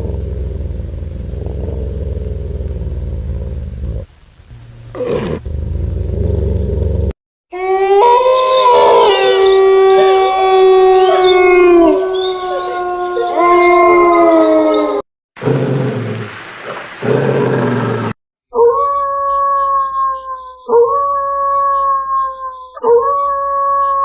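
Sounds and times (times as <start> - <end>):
wolves howling: 7.5 - 15.0, 18.6 - 24.0.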